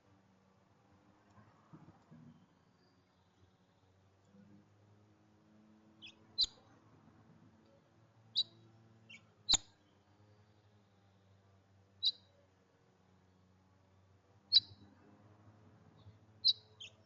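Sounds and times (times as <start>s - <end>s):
small bird chirping: 6.0s - 6.7s, 8.3s - 11.3s, 12.0s - 12.4s, 14.5s - 14.9s, 16.0s - 17.0s.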